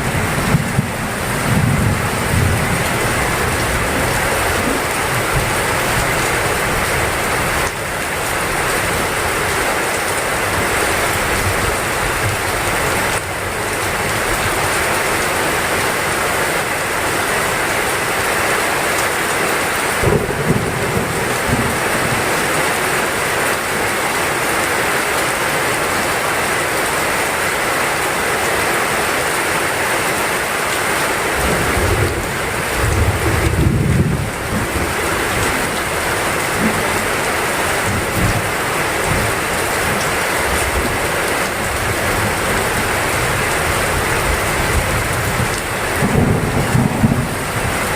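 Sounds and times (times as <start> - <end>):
heavy rain falling: 0.0 - 47.9
low rumbles of thunder: 0.1 - 6.2, 20.0 - 22.4, 31.6 - 35.8, 44.2 - 47.9.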